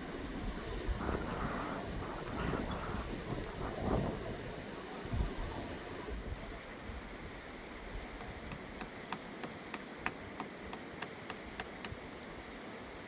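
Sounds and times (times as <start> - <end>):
light sharp taps: 8.2 - 12.0.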